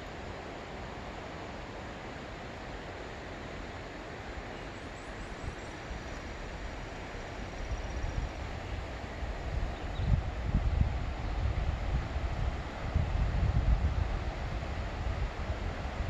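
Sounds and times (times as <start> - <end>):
wind hiss: 0.0 - 16.0
wind buffeting microphone: 7.7 - 16.0.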